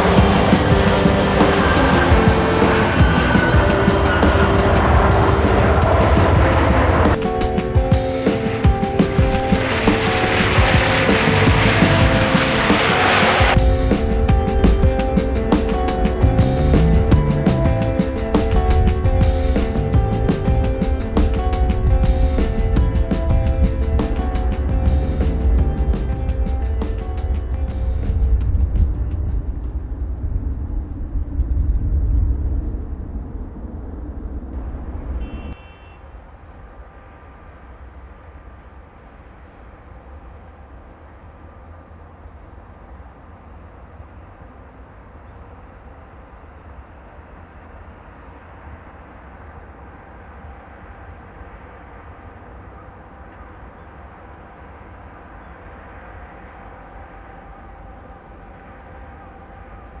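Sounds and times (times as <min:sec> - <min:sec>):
wind buffeting microphone: 0:00.0 - 0:35.6
distant jet engines running: 0:00.0 - 1:00.0
faint steady whine: 0:00.0 - 1:00.0.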